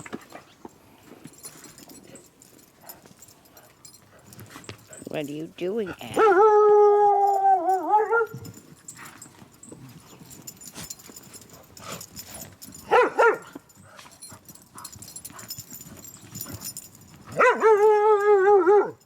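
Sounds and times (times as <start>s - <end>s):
dog yelping: 6.1s - 8.6s, 12.9s - 13.6s, 17.3s - 19.0s
dog whining: 6.1s - 8.7s, 17.3s - 19.0s.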